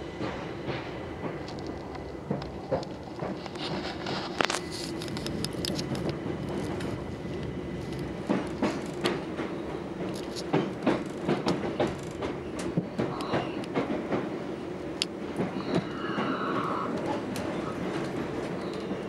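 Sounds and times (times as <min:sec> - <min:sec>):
train rumble from inside carriage: 0:00.0 - 0:19.0
wheels clicking over rail joints: 0:00.7 - 0:14.3.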